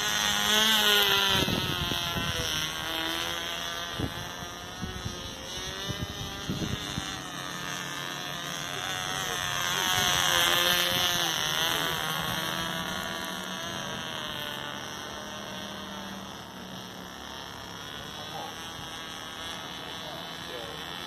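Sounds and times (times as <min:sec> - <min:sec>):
model plane engine buzzing: 0:00.0 - 0:21.0.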